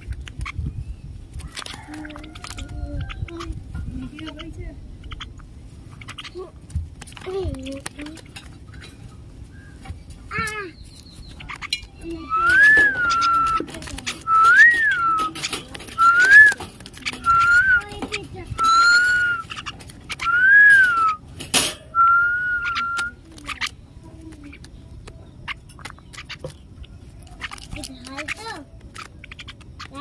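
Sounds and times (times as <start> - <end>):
person whistling: 14.3 - 15.2, 20.3 - 21.2, 22.0 - 23.1.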